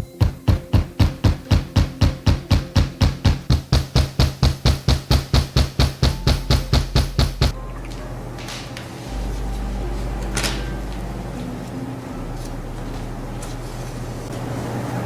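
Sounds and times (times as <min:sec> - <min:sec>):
steady low hum: 0:00.0 - 0:15.0
fast sharp knocks: 0:00.2 - 0:07.6.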